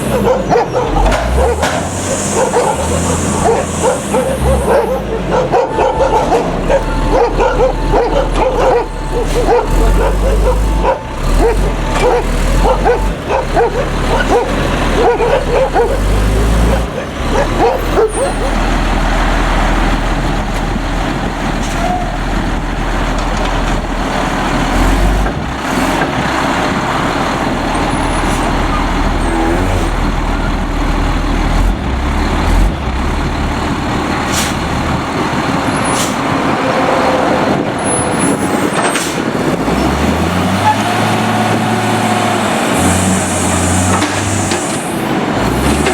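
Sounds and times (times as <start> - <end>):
garbage truck engine rumbling: 0.0 - 45.9.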